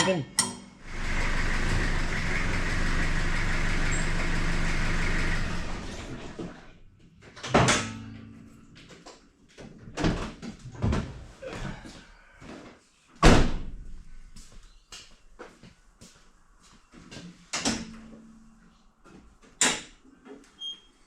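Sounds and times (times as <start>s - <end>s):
mechanical running noise: 0.8s - 6.6s.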